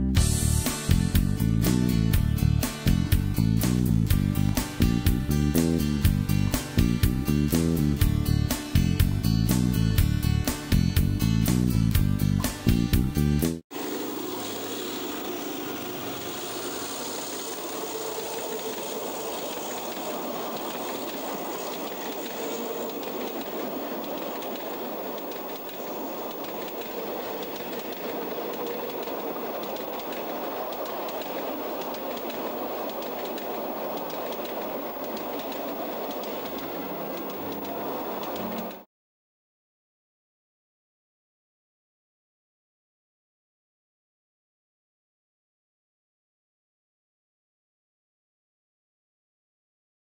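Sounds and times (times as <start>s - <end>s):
freight train wheels rolling on rail: 13.8s - 38.8s
faint clicks: 16.1s - 38.8s.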